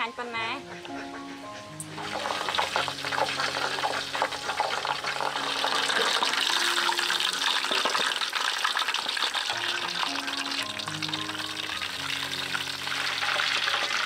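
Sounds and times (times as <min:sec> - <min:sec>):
meat sizzling in hot oil: 0:01.8 - 0:14.0.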